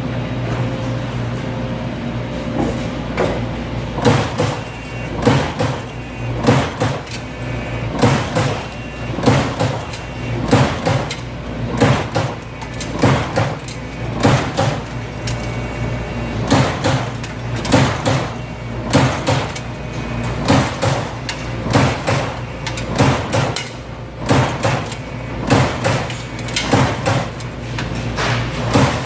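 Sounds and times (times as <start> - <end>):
low machine hum: 0.0 - 29.0
punch press strikes: 4.0 - 7.1, 7.9 - 9.9, 10.5 - 11.2, 11.8 - 12.4, 14.2 - 14.9, 16.4 - 19.6, 20.4 - 22.4, 23.0 - 27.4.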